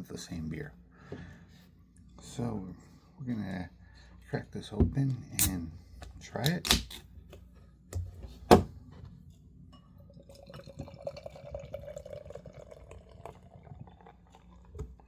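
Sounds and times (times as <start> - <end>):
beer pouring into glass: 10.0 - 15.0.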